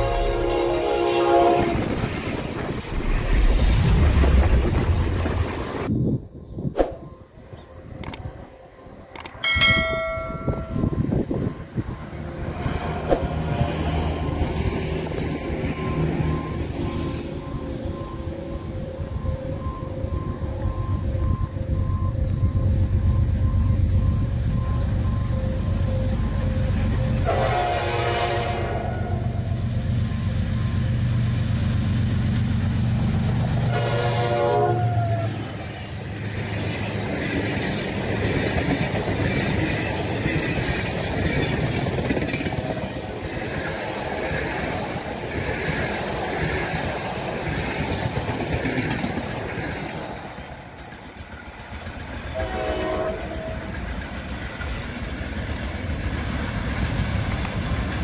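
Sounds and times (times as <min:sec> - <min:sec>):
train horn: 0:00.0 - 0:02.1, 0:24.7 - 0:29.6, 0:33.6 - 0:35.6, 0:52.3 - 0:54.0
wheels clacking on rails: 0:34.8 - 0:58.0.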